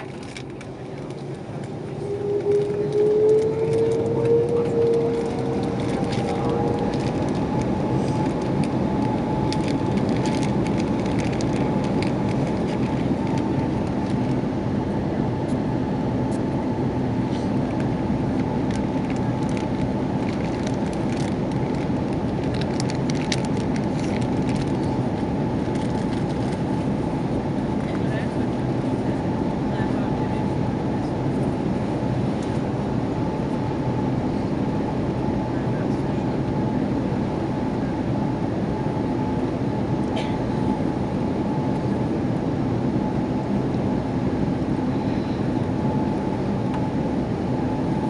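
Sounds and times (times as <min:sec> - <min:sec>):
loud even rumble: 0:00.0 - 0:14.2
jet engine whine in cabin: 0:00.0 - 0:48.0.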